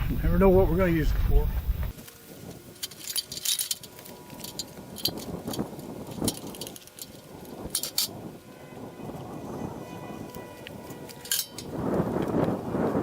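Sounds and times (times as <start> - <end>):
metal pieces clinking: 2.8 - 8.1, 11.2 - 11.7.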